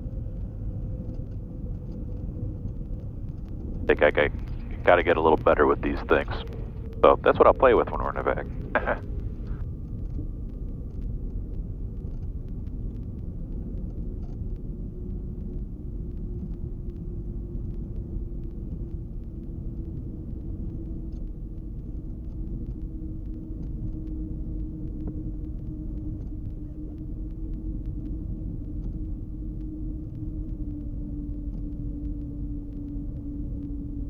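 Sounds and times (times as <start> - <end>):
aircraft engines droning: 3.6 - 9.6
faint hum dropping in pitch: 3.8 - 9.6.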